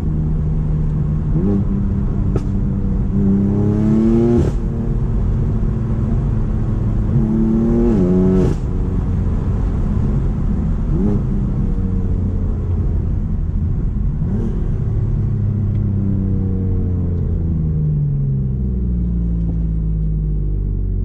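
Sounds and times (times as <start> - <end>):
car engine revving and upshifting: 0.0 - 13.0.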